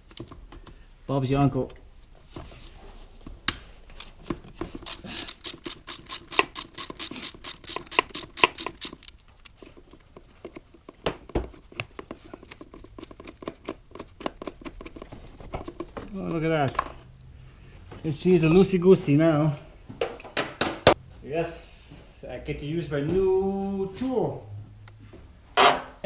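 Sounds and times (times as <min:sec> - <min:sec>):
ratchet wrench clicking: 0:04.8 - 0:09.6.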